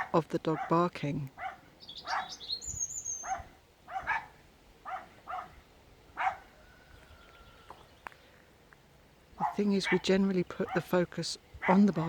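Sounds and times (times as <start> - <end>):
dog barking: 0.0 - 0.8, 1.4 - 2.4, 3.2 - 5.6, 6.2 - 6.6, 9.4 - 11.0, 11.6 - 12.0.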